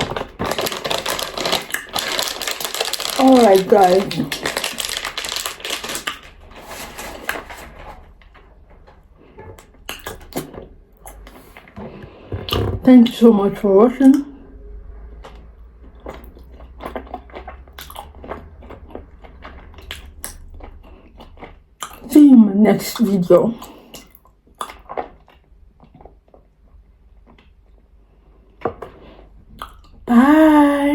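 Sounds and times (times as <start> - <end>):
chewing crunches: 0.1 - 6.4, 15.2 - 22.1, 23.6 - 27.8.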